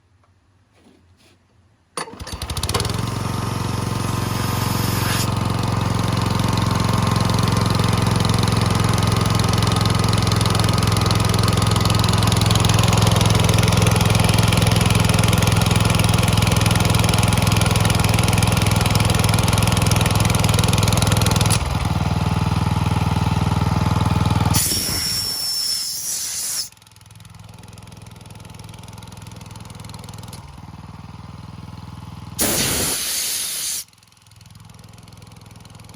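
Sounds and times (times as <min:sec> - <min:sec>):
air compressor engine running: 0:02.1 - 0:26.8, 0:27.4 - 0:34.0
air hissing: 0:03.8 - 0:05.4, 0:24.5 - 0:26.7, 0:32.4 - 0:33.9.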